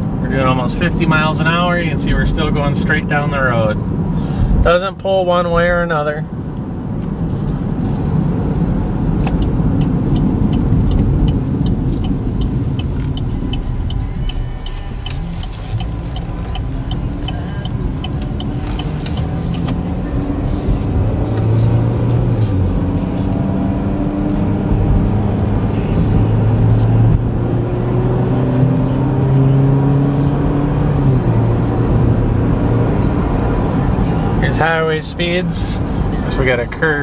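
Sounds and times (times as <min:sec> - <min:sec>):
road noise: 0:00.0 - 0:37.0
engine drone: 0:07.3 - 0:34.8
light regular ticking: 0:08.6 - 0:22.2.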